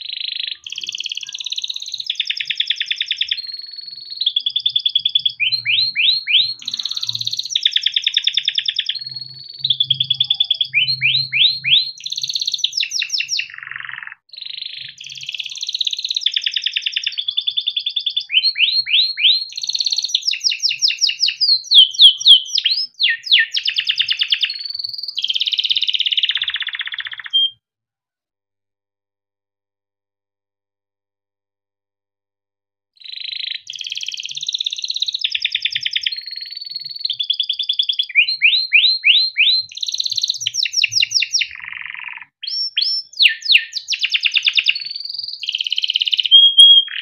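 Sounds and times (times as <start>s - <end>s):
canary singing trills: 0.0s - 27.6s, 33.0s - 47.0s.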